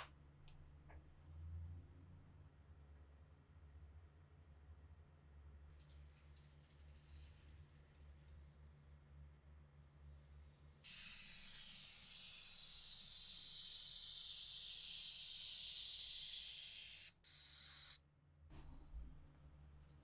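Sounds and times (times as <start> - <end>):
pressurised spray hissing: 10.9 - 18.0.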